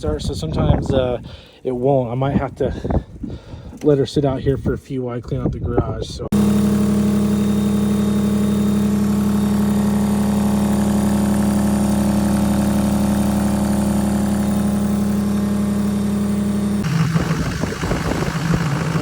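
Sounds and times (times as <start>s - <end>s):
vehicle engine idling: 6.3s - 19.0s.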